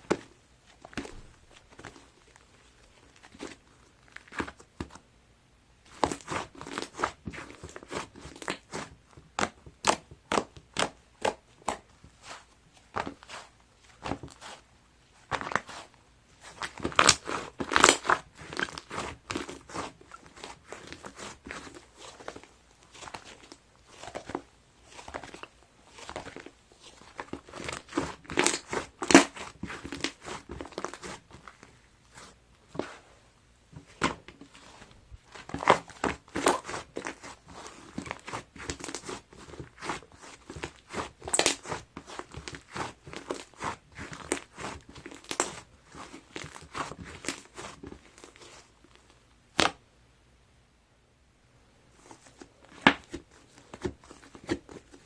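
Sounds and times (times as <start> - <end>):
crunchy slime crackling: 5.9 - 33.1, 33.8 - 49.8.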